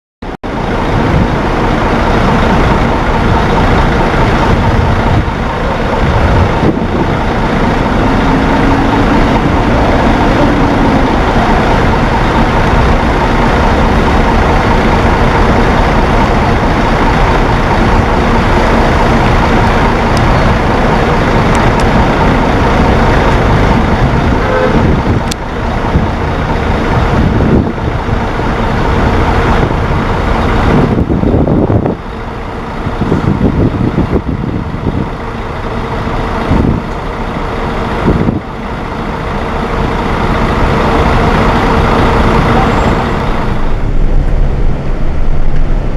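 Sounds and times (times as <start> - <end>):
bus engine drone: 0.2 - 45.9
road noise: 0.2 - 45.9.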